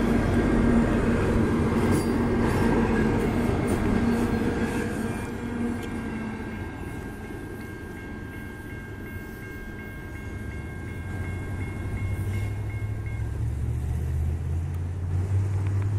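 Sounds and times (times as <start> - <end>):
freight train wheels rumbling: 0.0 - 15.9
high ringing tones: 1.8 - 13.4.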